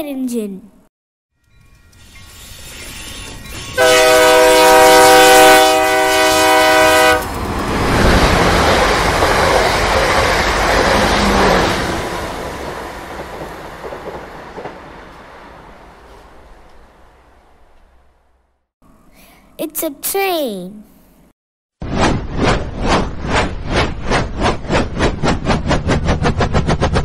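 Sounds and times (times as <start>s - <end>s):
train passing: 1.4s - 18.5s, 22.2s - 27.0s
train horn blast: 3.8s - 7.3s.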